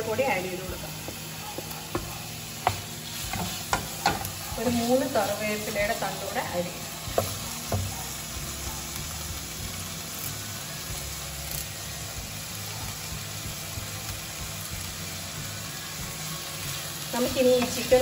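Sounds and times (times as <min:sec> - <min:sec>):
food sizzling in a frying pan: 0:00.0 - 0:18.0
wooden spatula knocking on pan: 0:01.0 - 0:04.9, 0:07.1 - 0:08.0.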